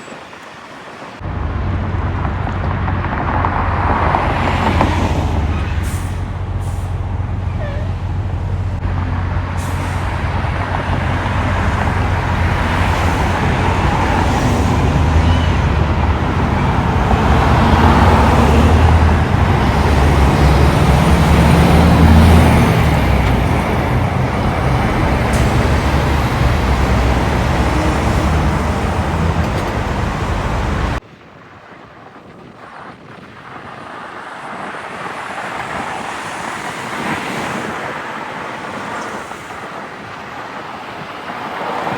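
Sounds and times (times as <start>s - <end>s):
road noise: 0.0s - 41.9s
truck diesel engine passing: 1.2s - 31.0s
vehicle approaching: 1.2s - 31.0s.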